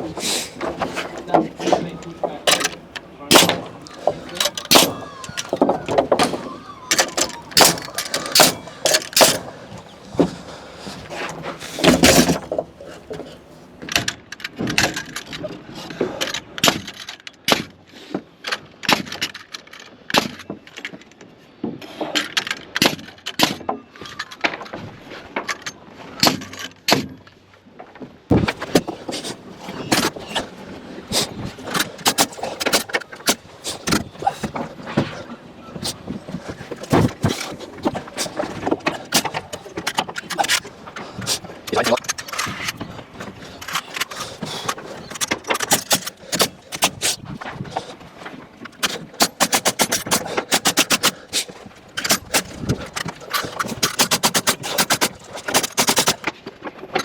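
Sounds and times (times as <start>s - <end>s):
nailing knocks and bangs: 0.6s - 10.3s, 11.0s - 13.2s, 35.8s - 47.8s, 48.8s - 56.3s.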